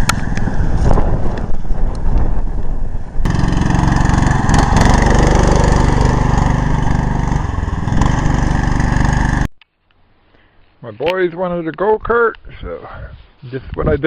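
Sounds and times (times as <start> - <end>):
small petrol engine running: 3.2 - 9.5.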